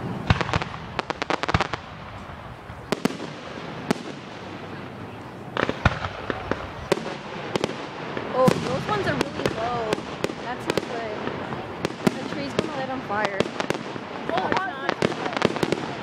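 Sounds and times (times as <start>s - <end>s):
fireworks bangs: 0.0s - 16.0s
fireworks crackling pops: 0.0s - 16.0s.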